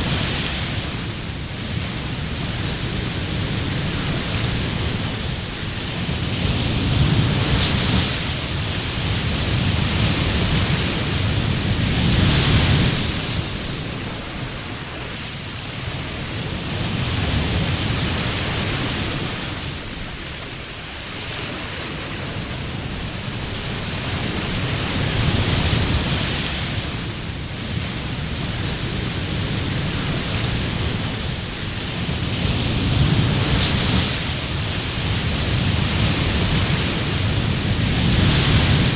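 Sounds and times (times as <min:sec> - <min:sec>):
waves breaking on a beach: 0:00.0 - 0:38.9.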